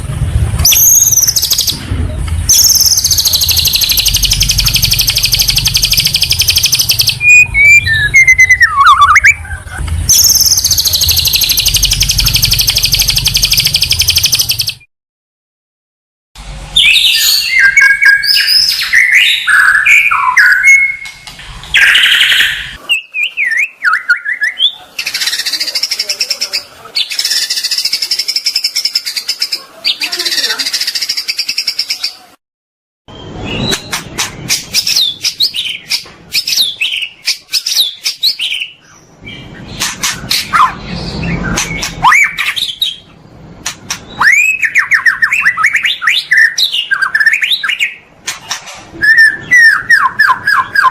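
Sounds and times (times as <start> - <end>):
songbird whistled phrases: 2.5 - 14.8, 16.8 - 21.2, 21.8 - 26.0, 41.4 - 43.0, 44.1 - 48.0, 49.0 - 50.9
rapid clicking trills: 10.1 - 14.7.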